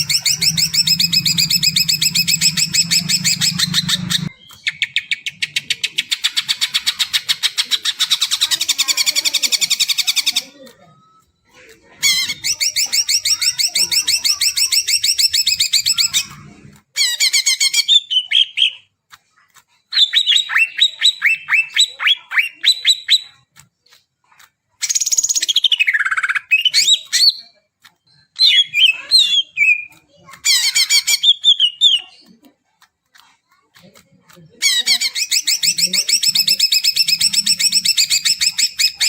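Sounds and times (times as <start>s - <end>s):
bird singing trills: 0.0s - 7.3s.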